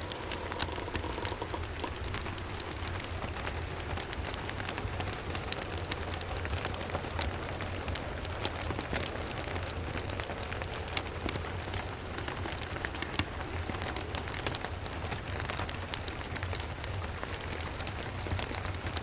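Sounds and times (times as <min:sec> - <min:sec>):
low steady rumble: 0:00.0 - 0:12.3
rain hissing: 0:00.0 - 0:18.9
wood fire crackling and popping: 0:00.0 - 0:19.0.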